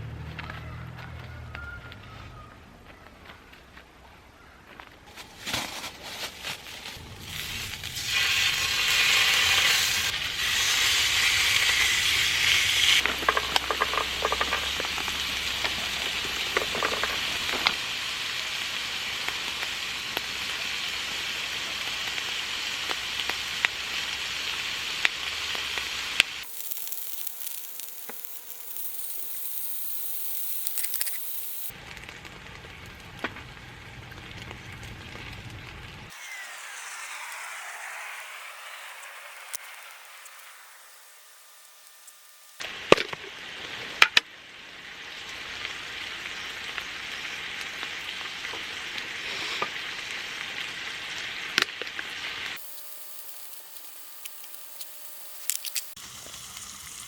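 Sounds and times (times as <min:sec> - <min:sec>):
food sizzling in a hot pan: 0:07.2 - 0:31.8, 0:36.1 - 0:42.8, 0:44.4 - 0:57.0.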